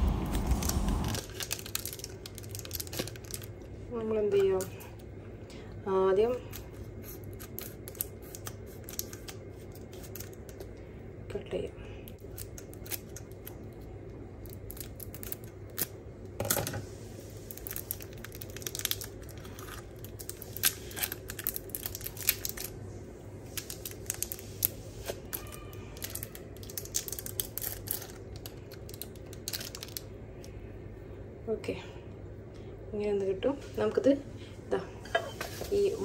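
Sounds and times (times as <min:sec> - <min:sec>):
steady low hum: 0:00.0 - 0:36.0
plastic film crinkling and tearing: 0:00.1 - 0:03.7, 0:06.6 - 0:10.6, 0:14.4 - 0:15.9, 0:17.4 - 0:22.8, 0:23.4 - 0:30.1.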